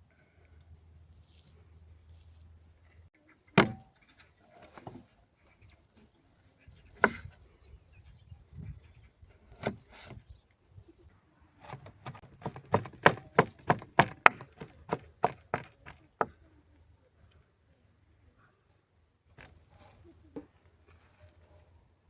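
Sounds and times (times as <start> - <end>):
chopping wood knocks: 3.6 - 3.9, 11.7 - 16.3.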